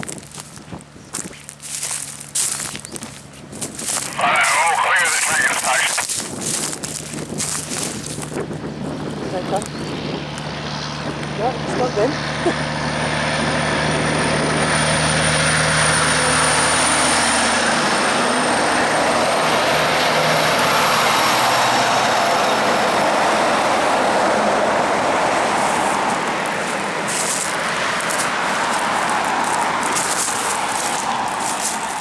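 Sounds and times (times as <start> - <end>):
low engine hum: 0.0 - 32.0
heavy vehicle passing: 6.7 - 32.0.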